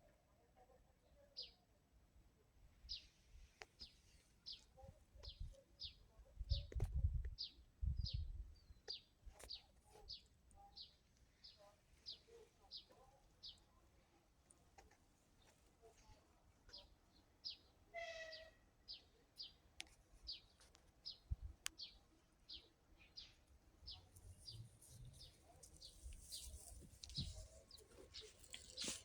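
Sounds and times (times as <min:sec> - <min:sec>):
songbird high chirp: 0:03.8 - 0:13.8, 0:16.7 - 0:29.0.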